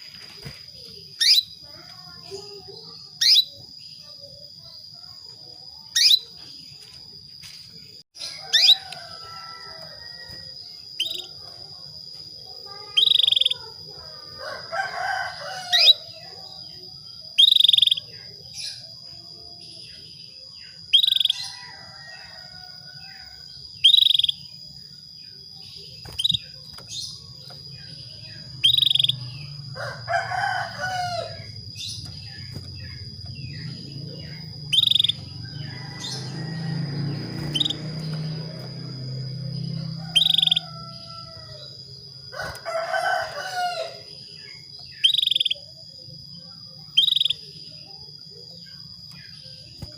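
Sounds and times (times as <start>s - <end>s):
canary call notes: 12.8s - 13.8s, 28.4s - 39.0s, 39.7s - 41.7s, 44.9s - 45.6s
longer lower bird call: 34.2s - 37.8s.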